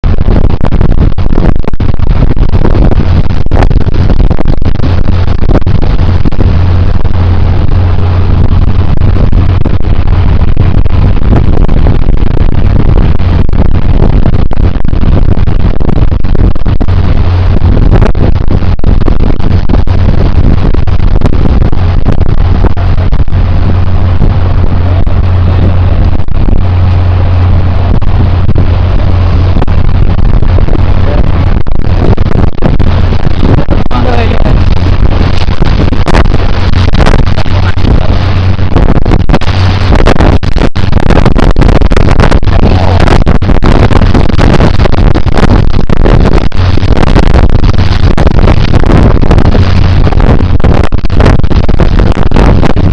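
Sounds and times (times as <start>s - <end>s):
loud boat engine drone: 0.0s - 52.9s.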